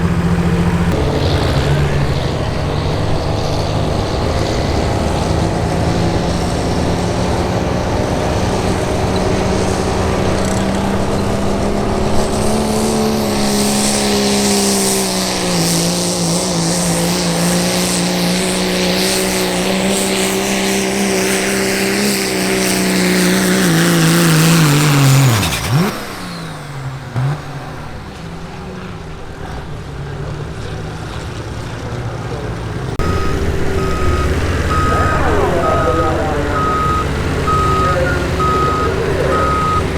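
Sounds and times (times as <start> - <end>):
diesel truck engine at full throttle: 0.0 - 39.9
reversing alarm beeping: 33.0 - 39.9.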